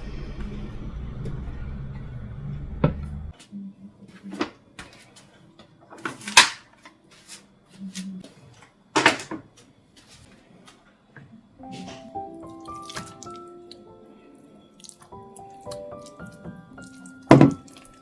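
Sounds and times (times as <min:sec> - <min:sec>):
low machine hum: 0:00.0 - 0:03.3
knocks and clatters of handling: 0:04.1 - 0:12.1.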